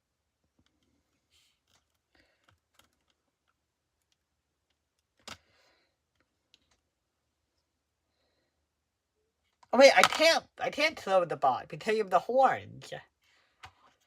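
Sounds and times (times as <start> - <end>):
plastic pieces clicking: 1.6 - 5.5, 9.9 - 10.3.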